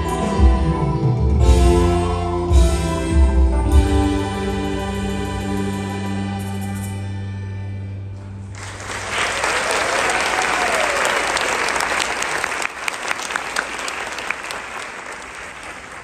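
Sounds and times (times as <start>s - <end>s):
audience applauding: 8.5s - 16.0s.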